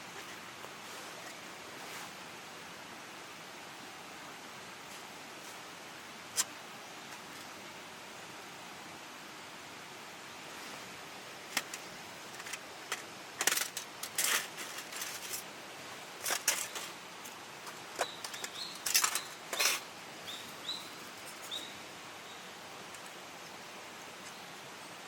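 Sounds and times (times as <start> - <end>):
stream hiss: 0.0 - 25.0
rustling and crackling: 10.5 - 21.7.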